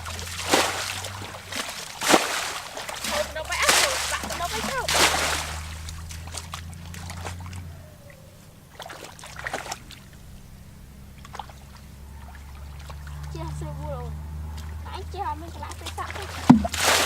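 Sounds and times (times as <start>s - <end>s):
hands splashing in water: 0.0s - 7.5s, 15.8s - 17.0s
steady low hum: 0.0s - 17.0s.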